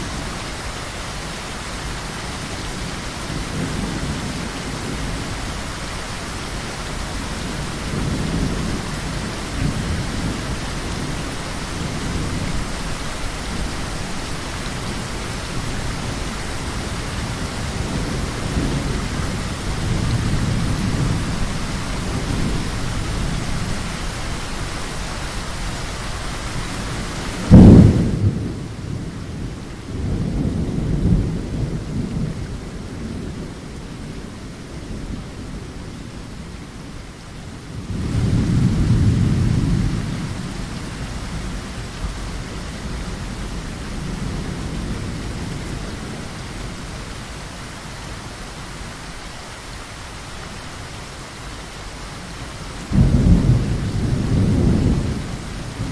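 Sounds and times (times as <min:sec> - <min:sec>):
heavy rain: 0:00.0 - 0:55.9
thunder rumbling: 0:06.6 - 0:24.0, 0:26.5 - 0:36.9, 0:37.7 - 0:47.2, 0:52.8 - 0:55.9
loud thunderclap: 0:27.4 - 0:29.1, 0:52.9 - 0:55.9.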